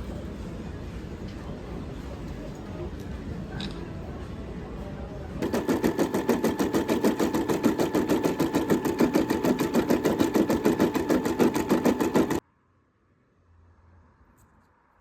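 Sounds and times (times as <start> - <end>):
sewing machine stitching: 5.4 - 12.4.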